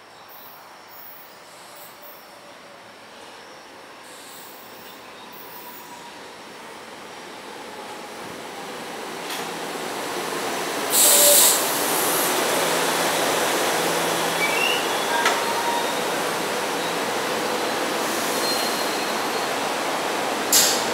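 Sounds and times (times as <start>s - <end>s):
train rolling into station: 0.1s - 20.9s
loud hissing burst: 10.9s - 12.5s
faint wheel squeal: 18.3s - 19.5s.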